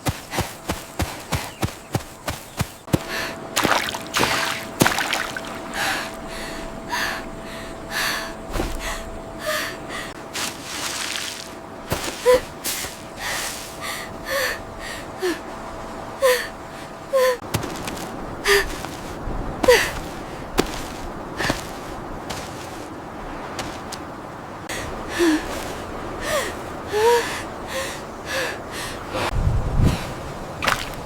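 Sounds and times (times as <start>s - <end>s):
person gasping for breath: 11.9s - 15.5s, 16.2s - 17.4s, 18.4s - 18.9s.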